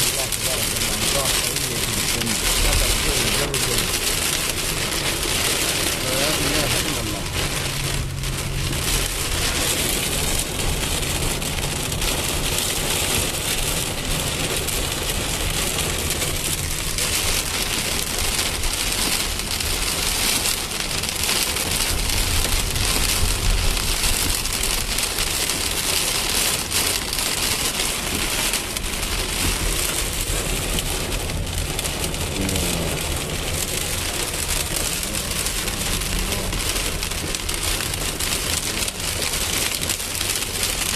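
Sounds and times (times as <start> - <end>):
low rumble: 0.0 - 12.4
rain pouring on hard surfaces: 0.0 - 40.9.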